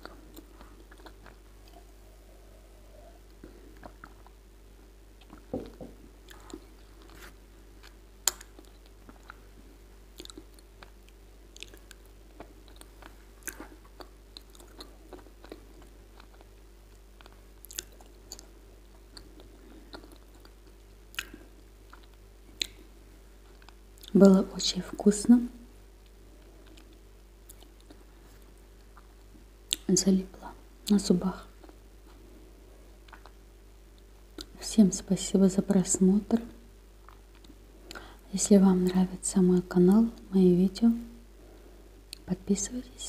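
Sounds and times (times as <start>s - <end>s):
chewing wet clay crunches: 10.2s - 22.8s.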